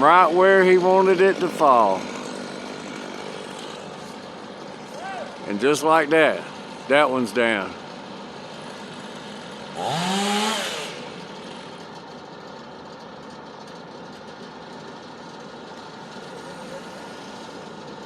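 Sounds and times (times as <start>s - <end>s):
chainsaw revving: 0.0s - 12.0s, 15.9s - 18.0s
engine idling: 0.0s - 18.0s.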